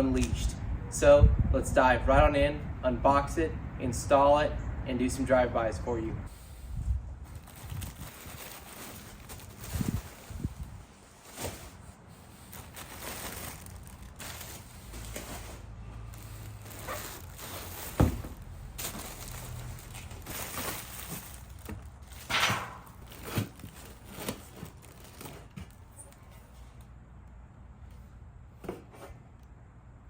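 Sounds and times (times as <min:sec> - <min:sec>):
packaging rustling and crinkling: 0:06.4 - 0:22.3, 0:22.9 - 0:25.9.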